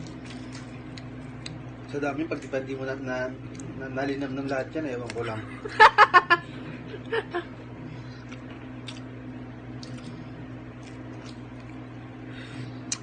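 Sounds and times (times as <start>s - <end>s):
steady low hum: 0.0s - 13.0s
squishy chewing sounds: 8.2s - 9.1s, 9.7s - 11.9s
soft mouth clicks: 9.8s - 10.1s.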